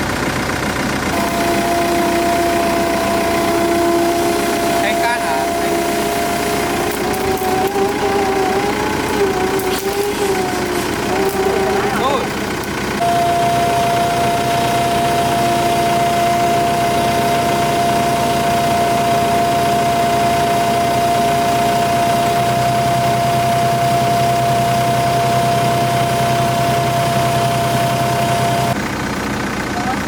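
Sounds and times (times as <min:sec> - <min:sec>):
diesel engine running: 0:00.0 - 0:30.0
high whine: 0:01.1 - 0:28.8.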